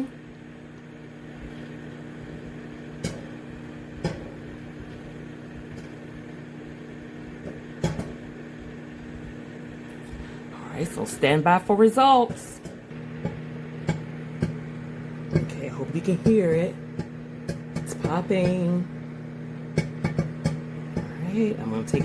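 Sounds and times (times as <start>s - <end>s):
microwave oven humming: 0.0s - 22.0s
popcorn popping: 2.0s - 8.9s, 12.1s - 22.0s.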